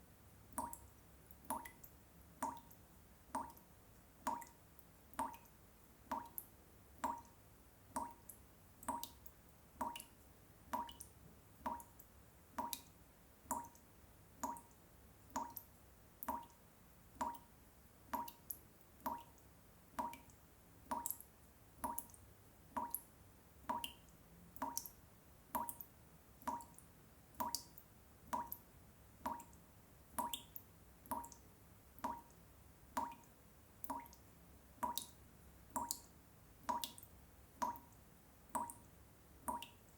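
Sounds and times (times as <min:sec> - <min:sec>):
water drops plopping into water: 0:00.5 - 0:03.7, 0:04.3 - 0:05.5, 0:06.1 - 0:12.9, 0:13.5 - 0:13.8, 0:14.4 - 0:14.8, 0:15.4 - 0:16.6, 0:17.2 - 0:17.5, 0:18.2 - 0:19.4, 0:20.0 - 0:26.8, 0:27.4 - 0:28.6, 0:29.2 - 0:29.6, 0:30.2 - 0:31.4, 0:32.0 - 0:34.2, 0:34.8 - 0:35.2, 0:35.8 - 0:38.0, 0:38.6 - 0:39.8.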